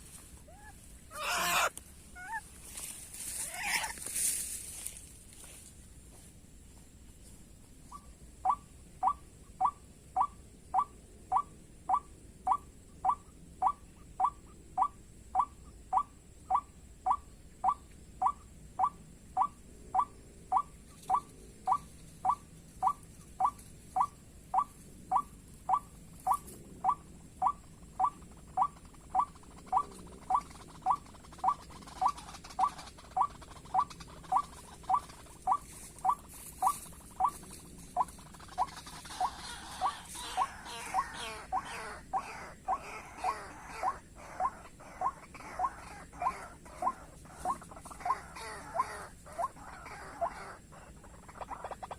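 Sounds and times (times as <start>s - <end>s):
waterhen call: 0.0s - 2.5s, 3.3s - 4.3s, 27.4s - 51.9s.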